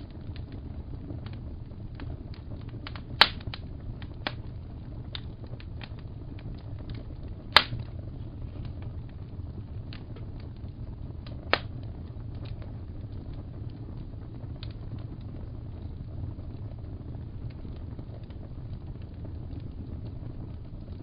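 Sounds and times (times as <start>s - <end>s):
low rumble: 0.0s - 21.0s
wood fire crackling: 0.0s - 21.0s
sharp fire pop: 2.8s - 4.5s, 7.5s - 8.9s, 11.2s - 11.9s.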